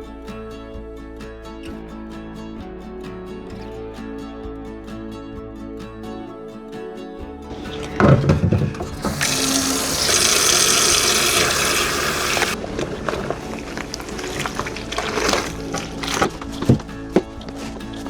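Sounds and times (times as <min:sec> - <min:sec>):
tap water running into sink: 0:07.5 - 0:17.9.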